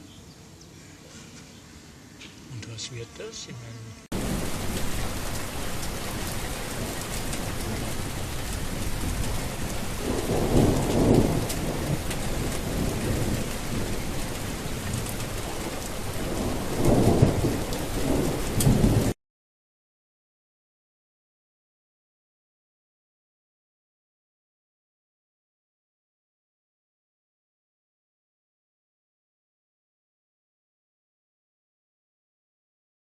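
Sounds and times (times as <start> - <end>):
heavy rain: 4.1 - 19.2
thunder rumbling: 4.1 - 19.2.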